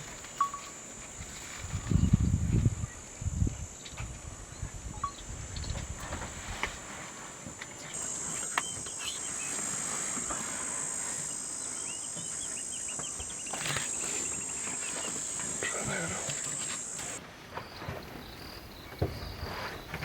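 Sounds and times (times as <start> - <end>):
insects droning: 0.0 - 20.0
bird chirps: 4.9 - 5.8, 7.8 - 10.3.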